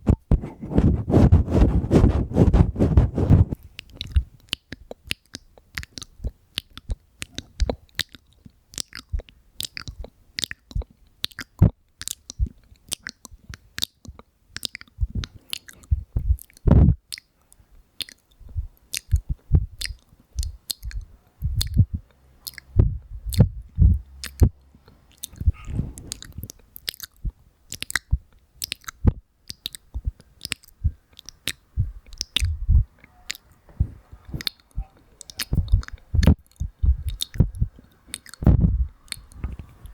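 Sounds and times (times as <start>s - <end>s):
wet mouth clicks and smacks: 3.7s - 39.9s
deep mouth pops: 15.0s - 17.0s, 18.4s - 22.0s, 22.7s - 24.6s, 25.3s - 39.9s.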